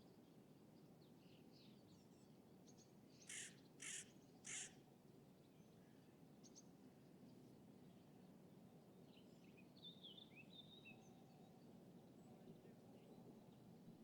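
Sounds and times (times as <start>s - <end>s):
crow cawing: 3.3s - 4.8s.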